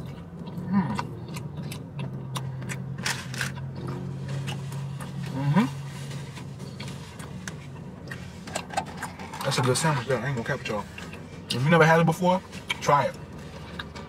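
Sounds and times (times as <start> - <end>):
chewing clicks: 0.0 - 5.2
steady low hum: 0.0 - 14.0.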